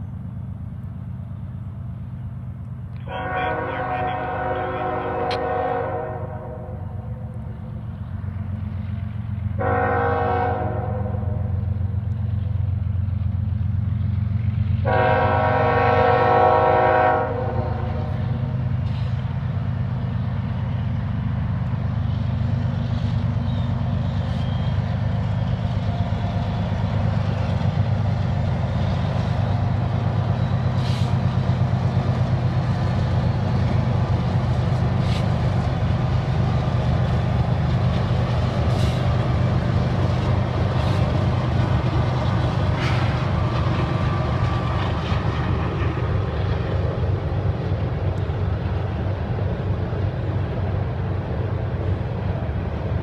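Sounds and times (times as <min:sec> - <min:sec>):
diesel locomotive engines rumbling: 0:00.0 - 0:53.0
freight train horn: 0:03.0 - 0:07.4, 0:09.6 - 0:11.8, 0:14.8 - 0:18.5.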